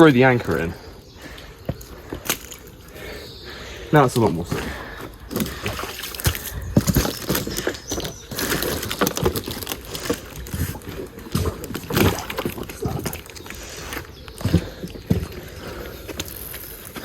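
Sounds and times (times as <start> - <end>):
water sloshing and gurgling: 4.2 - 17.0.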